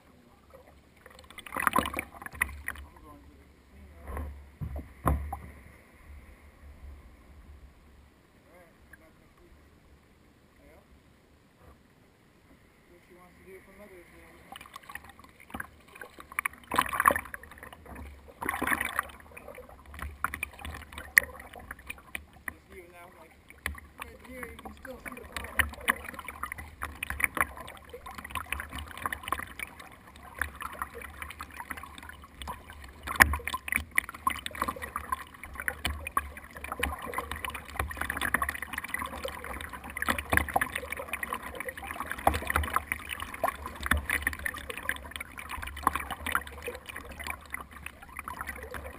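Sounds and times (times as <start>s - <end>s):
water splashing and gurgling: 0.0s - 6.9s, 13.4s - 48.9s
knocks against kayak hull: 4.1s - 5.6s.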